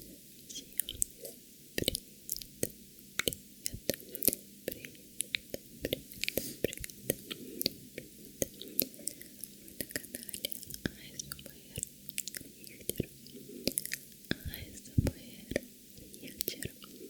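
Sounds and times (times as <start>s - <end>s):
wet mouth clicks and smacks: 1.8s - 17.0s.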